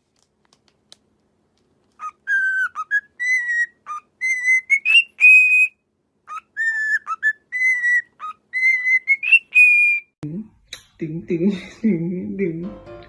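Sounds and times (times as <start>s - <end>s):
parrot whistling a tune: 2.0s - 10.1s.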